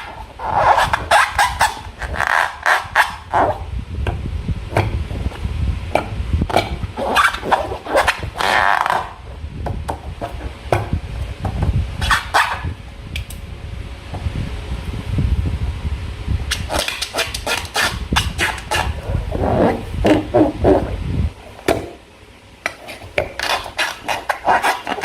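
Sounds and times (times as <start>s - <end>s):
low handling rumble: 3.3s - 12.0s, 12.7s - 16.5s, 18.0s - 22.1s.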